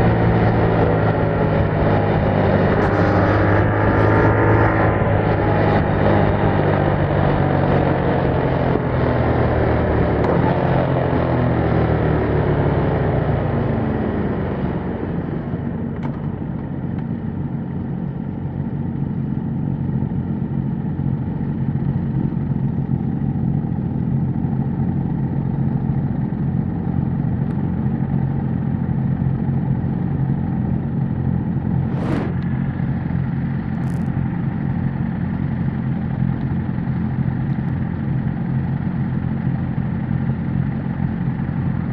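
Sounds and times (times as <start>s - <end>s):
motorcycle engine idling: 15.1s - 31.8s, 32.4s - 41.9s.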